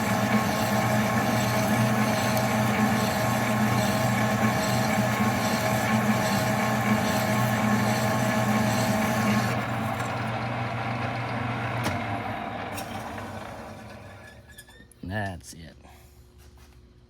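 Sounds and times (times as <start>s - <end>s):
hiss of lathe cutting: 0.0s - 9.6s
metal lathe running: 0.0s - 14.4s.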